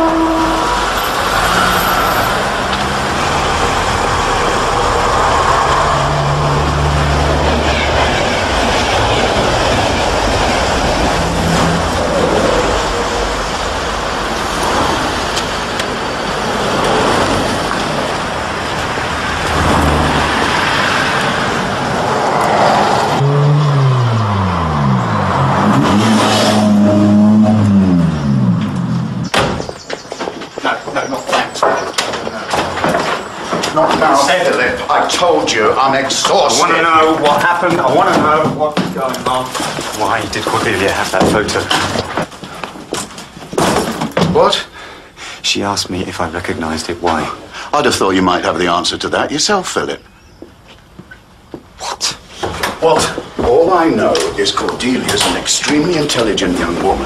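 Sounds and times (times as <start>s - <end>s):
road noise: 0.0s - 57.0s
sports car engine revving: 19.1s - 29.4s.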